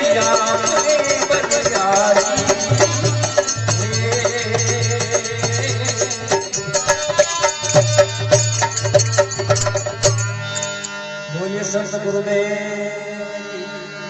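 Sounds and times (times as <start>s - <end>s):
steady percussion beat: 0.0s - 10.9s
folk devotional instrumental melody: 0.0s - 14.0s.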